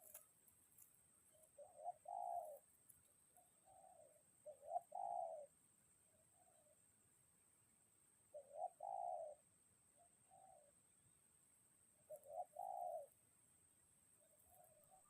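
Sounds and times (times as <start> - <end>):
dove cooing: 0.0 - 0.2, 1.3 - 2.7, 3.4 - 5.6, 8.3 - 9.4, 10.0 - 10.8, 12.0 - 13.2, 14.2 - 15.0.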